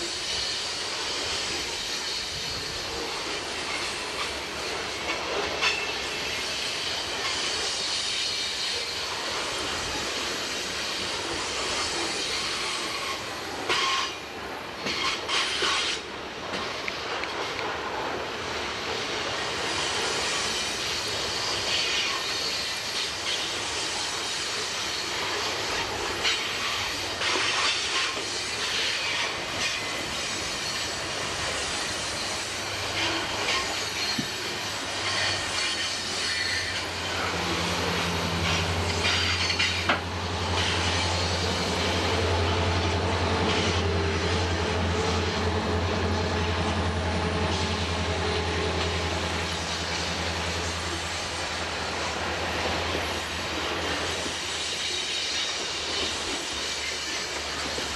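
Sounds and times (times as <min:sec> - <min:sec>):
freight train cars clattering: 0:00.0 - 0:57.9
wheel squeal: 0:25.7 - 0:42.0.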